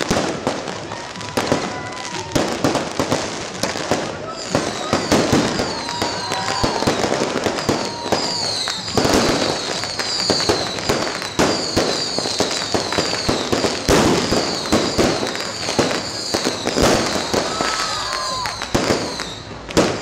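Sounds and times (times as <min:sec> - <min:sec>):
fireworks bangs and crackles: 0:00.0 - 0:20.0
high falling whistles: 0:14.4 - 0:19.6.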